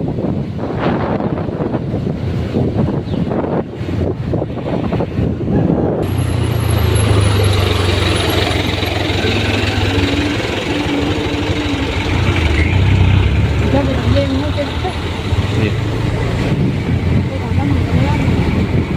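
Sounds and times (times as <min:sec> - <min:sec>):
wind buffeting microphone: 0:00.0 - 0:18.9
diesel truck engine running: 0:05.9 - 0:18.9
higher tone rising in pitch: 0:06.0 - 0:16.4.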